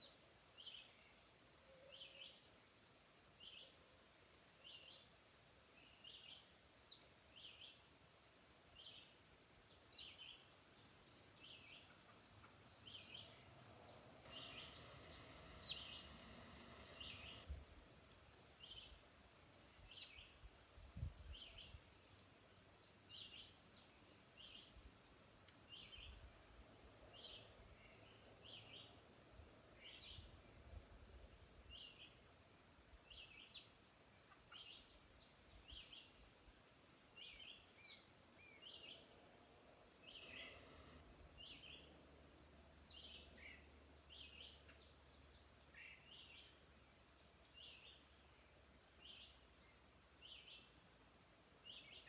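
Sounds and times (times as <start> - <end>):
birds chirping: 12.4 - 17.5, 40.1 - 41.7
brief hiss of noise: 14.3 - 17.6.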